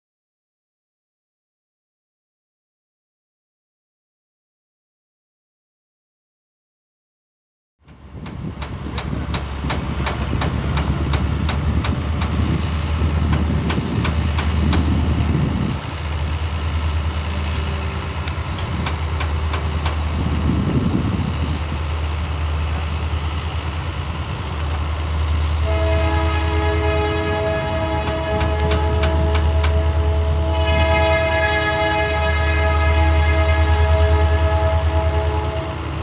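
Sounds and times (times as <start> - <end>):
train wheels clattering over track: 7.8 - 25.8, 26.9 - 31.2
diesel train rumble: 7.8 - 36.0
multi-note train horn: 25.6 - 36.0.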